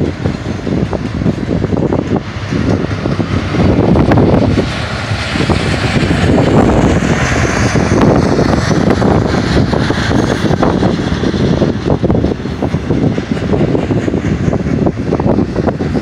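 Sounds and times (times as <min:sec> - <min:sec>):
train cars clicking and clanking: 0:00.0 - 0:16.0
train wheels rumbling on rails: 0:00.0 - 0:16.0.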